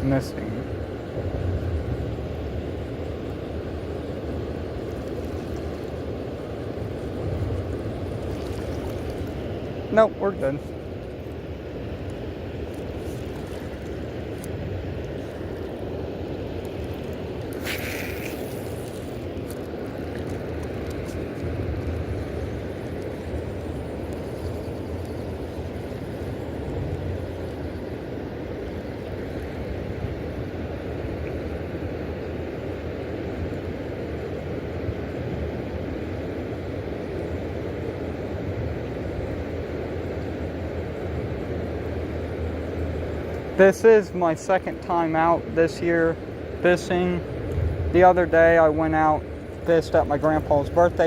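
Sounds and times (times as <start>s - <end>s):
low outdoor rumble: 0.0s - 51.0s
brief hiss: 17.6s - 19.2s.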